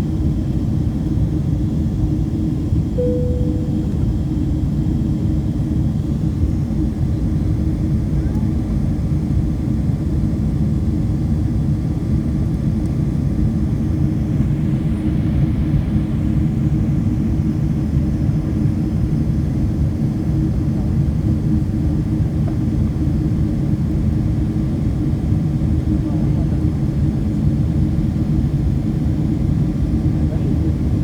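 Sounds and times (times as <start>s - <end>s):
aeroplane cabin engine drone: 0.0s - 31.0s.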